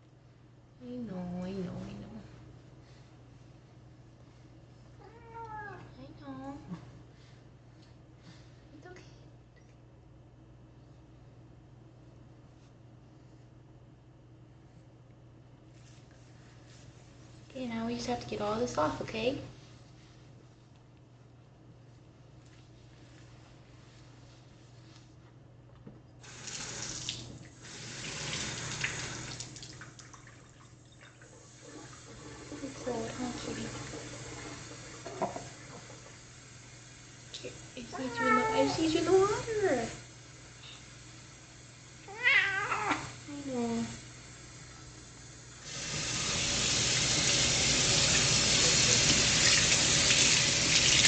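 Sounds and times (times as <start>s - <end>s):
tap water running in bathtub: 26.2s - 51.0s.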